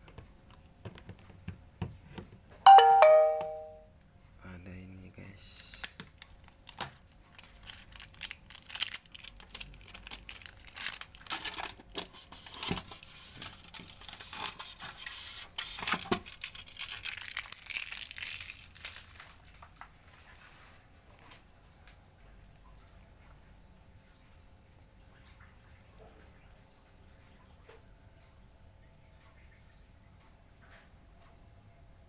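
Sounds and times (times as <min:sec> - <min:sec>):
packaging crinkling and tearing: 0:05.6 - 0:20.5.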